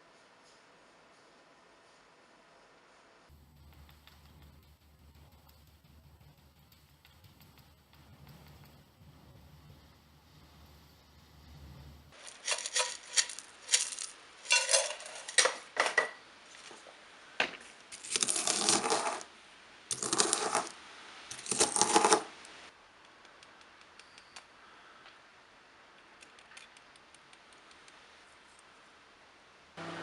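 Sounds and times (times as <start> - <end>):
metal pieces rattling: 12.2 - 16.1, 17.9 - 19.2, 19.9 - 20.7, 21.3 - 22.2
small metal pieces clinking: 12.2 - 16.1, 17.9 - 19.2, 19.9 - 20.7, 21.3 - 22.2.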